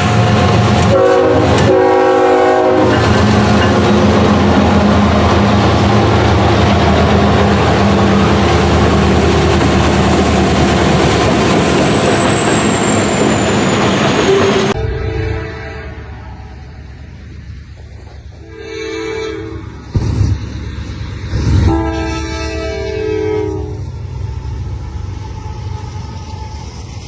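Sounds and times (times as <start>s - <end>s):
locomotive engine running: 0.0s - 18.7s
wheels rumbling on rail: 0.0s - 27.0s.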